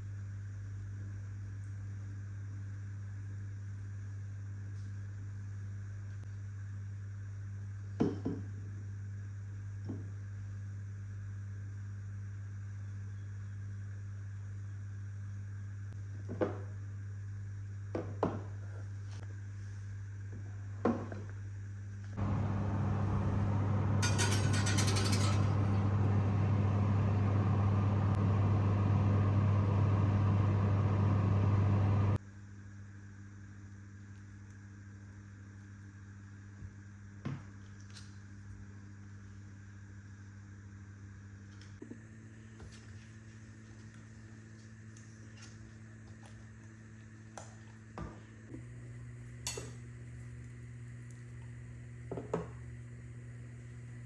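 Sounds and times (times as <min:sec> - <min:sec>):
kitchen appliance humming and whirring: 0:22.0 - 0:33.1, 0:36.9 - 0:54.0
dishes and utensils clinking: 0:24.0 - 0:25.8, 0:49.5 - 0:49.8.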